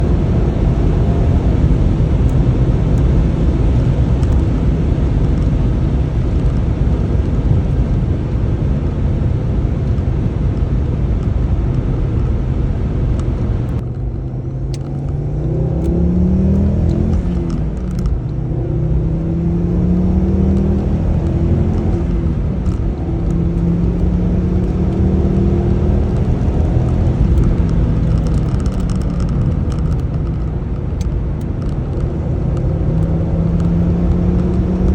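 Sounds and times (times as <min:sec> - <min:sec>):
car engine accelerating: 0:00.0 - 0:34.9.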